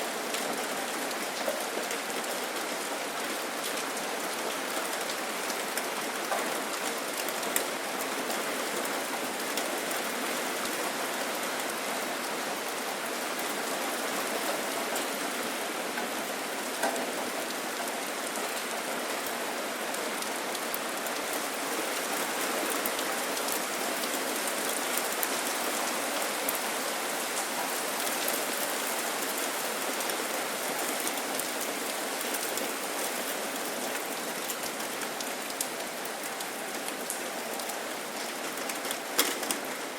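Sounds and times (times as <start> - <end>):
steady rain hiss: 0.0 - 39.9
raindrop ticks: 35.5 - 39.9.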